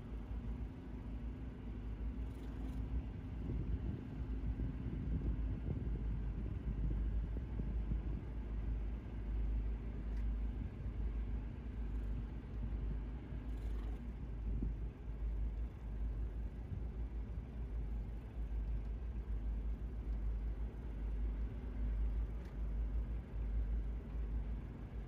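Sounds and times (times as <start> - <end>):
boat engines rumbling: 0.0 - 25.0
faint steady hum: 0.0 - 25.0
wind buffeting microphone: 3.1 - 8.4.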